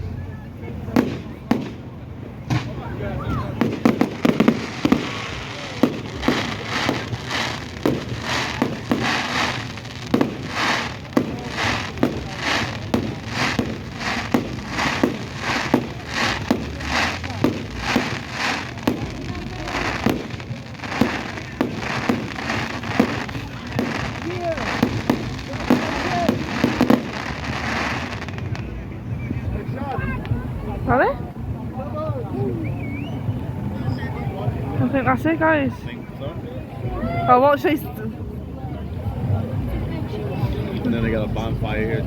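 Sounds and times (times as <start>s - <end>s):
fireworks crackling: 0.7s - 32.6s
fireworks bangs: 0.8s - 30.5s.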